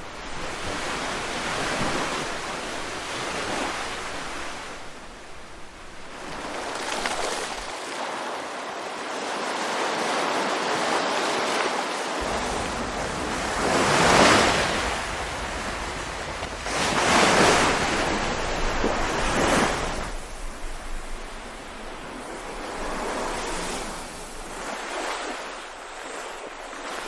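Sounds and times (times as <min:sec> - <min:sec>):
ocean waves breaking: 0:00.0 - 0:27.0.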